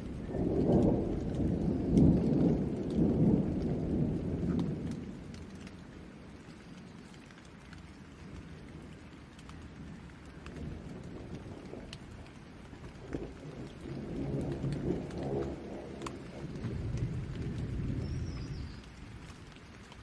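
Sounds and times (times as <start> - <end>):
thunder rumbling: 0.0 - 6.4, 8.3 - 20.0
raindrops ticking: 0.0 - 20.0
steady rain: 0.0 - 20.0.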